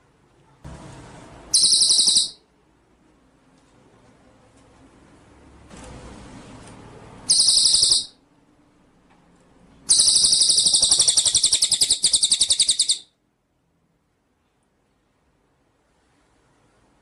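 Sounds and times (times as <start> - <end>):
songbird pulsing trill: 1.6 - 2.4, 7.3 - 8.2, 9.9 - 13.1.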